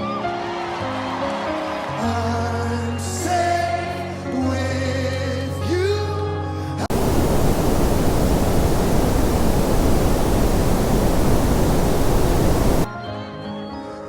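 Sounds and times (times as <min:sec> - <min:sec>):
heavy rain pouring: 0:06.9 - 0:12.9.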